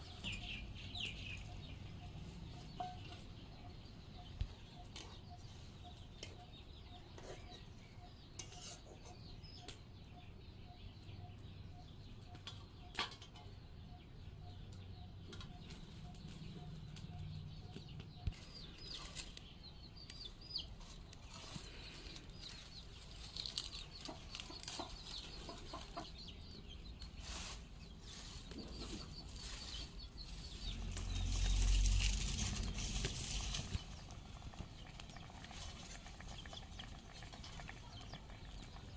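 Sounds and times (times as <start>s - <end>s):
chickens clucking and cheeping: 0.0s - 38.9s
rustling with low rumble: 15.4s - 38.9s.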